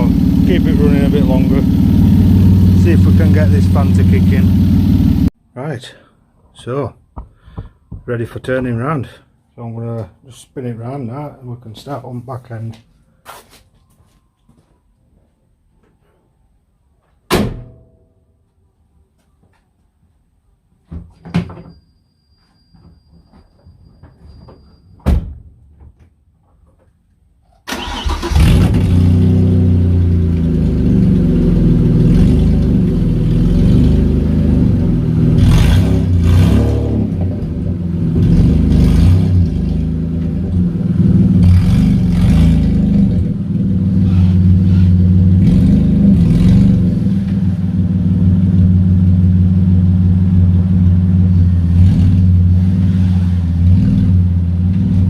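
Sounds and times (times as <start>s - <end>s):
car engine starting and running: 0.0s - 5.4s, 27.7s - 55.0s.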